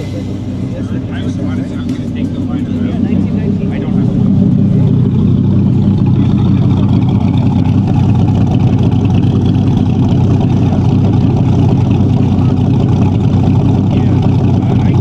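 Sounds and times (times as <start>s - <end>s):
car engine running steadily: 0.0s - 15.0s.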